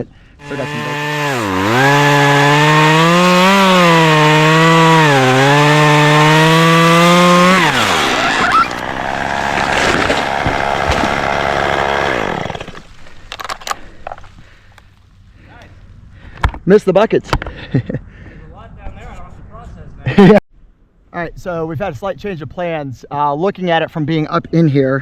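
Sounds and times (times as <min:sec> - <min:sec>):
chainsaw cutting wood: 0:00.4 - 0:14.2
branch crashing and rustling: 0:08.3 - 0:11.6.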